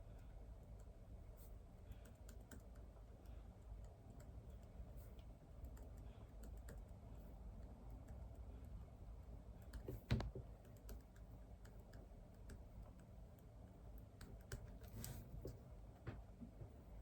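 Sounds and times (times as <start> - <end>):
typing on computer keyboard: 1.9 - 2.9.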